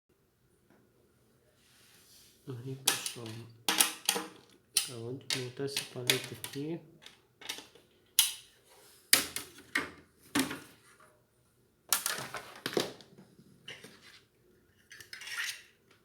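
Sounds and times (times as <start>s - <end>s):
tools and hard parts clattering: 2.9s - 7.8s.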